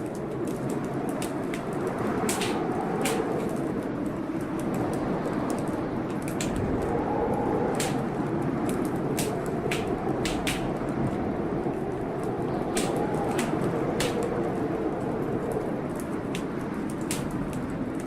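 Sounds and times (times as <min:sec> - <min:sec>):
rain rushing: 0:00.0 - 0:18.0
wood fire crackling and popping: 0:00.0 - 0:18.0.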